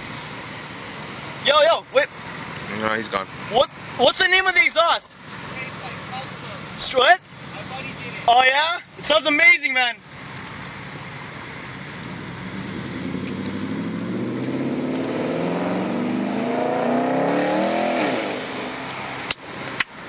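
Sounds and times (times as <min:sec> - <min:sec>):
car engine accelerating: 0:10.3 - 0:19.4.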